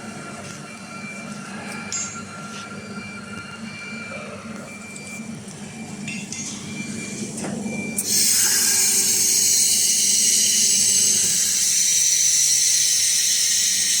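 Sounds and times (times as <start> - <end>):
low machine hum: 0.0 - 14.0
laser welder hissing: 8.0 - 14.0.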